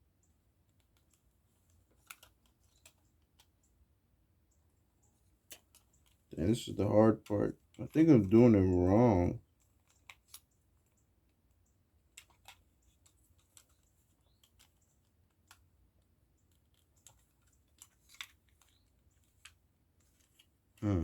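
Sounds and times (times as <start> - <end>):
plastic parts clicking together: 0.8 - 3.6.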